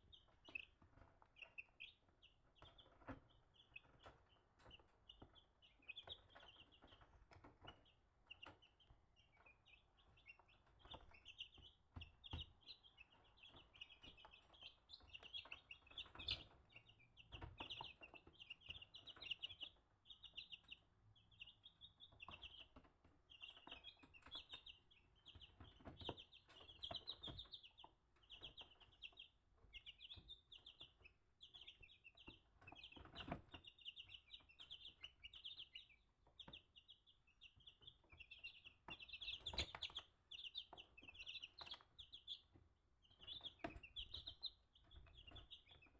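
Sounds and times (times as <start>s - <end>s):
chicks peeping: 0.0s - 45.9s.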